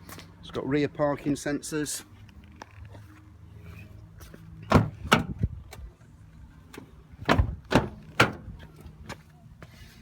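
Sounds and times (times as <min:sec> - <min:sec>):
car body panels clunking: 0:04.7 - 0:05.4, 0:06.7 - 0:08.7.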